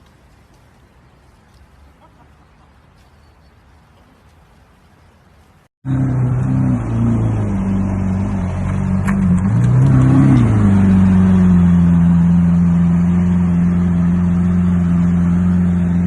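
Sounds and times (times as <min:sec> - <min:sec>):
car engine running: 0:05.9 - 0:16.0.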